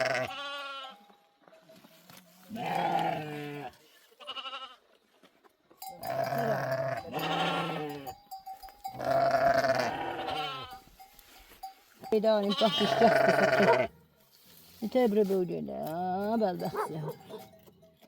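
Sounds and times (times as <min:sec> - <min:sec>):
sheep bleating: 0:00.0 - 0:01.0, 0:02.5 - 0:04.8, 0:05.9 - 0:08.2, 0:08.9 - 0:10.8, 0:12.4 - 0:13.9.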